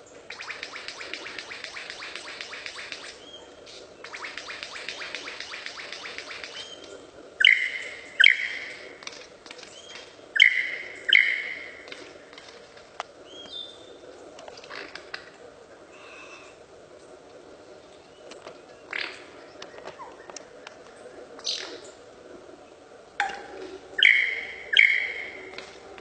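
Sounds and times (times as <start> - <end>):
bird rattling trill: 0.3 - 3.4, 4.0 - 11.8
harsh bird calls: 0.3 - 14.0, 23.4 - 25.8.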